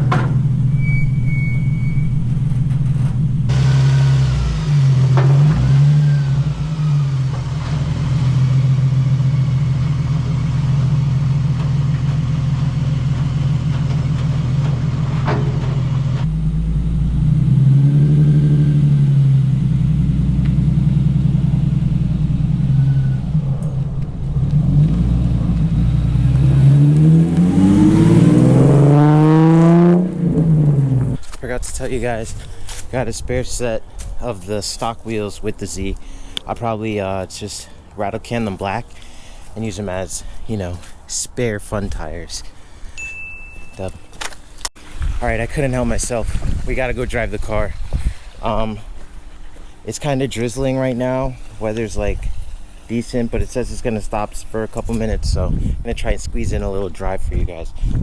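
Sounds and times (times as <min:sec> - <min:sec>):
car engine revving: 0:00.0 - 0:31.4.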